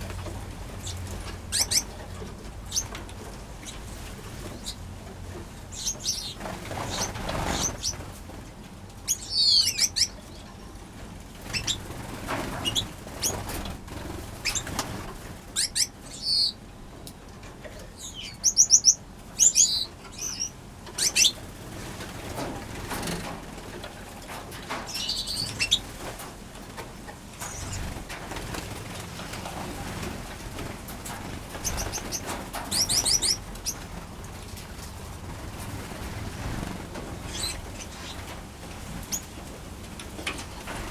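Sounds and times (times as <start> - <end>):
wings fluttering: 0.0 - 10.4, 11.3 - 16.6, 18.5 - 40.9
finches chirping and trilling: 0.7 - 2.0, 2.7 - 2.9, 4.4 - 4.8, 5.7 - 8.1, 9.1 - 10.6, 11.4 - 16.6, 18.0 - 21.5, 24.8 - 26.0, 27.4 - 29.0, 31.3 - 34.0, 36.5 - 38.3.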